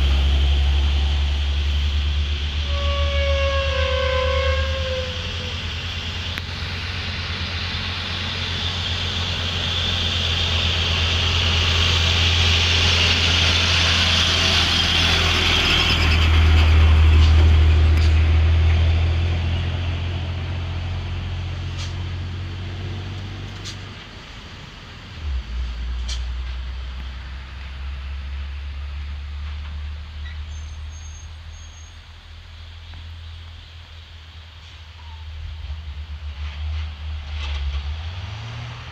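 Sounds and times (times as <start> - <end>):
deep diesel drone: 0.0 - 38.9
hissing brake screech: 2.6 - 5.6.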